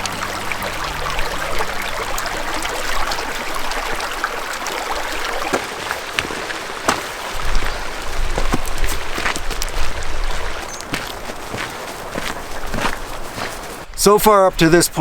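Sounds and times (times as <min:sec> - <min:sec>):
background music: 0:00.0 - 0:03.2
stream water rushing: 0:00.0 - 0:13.9.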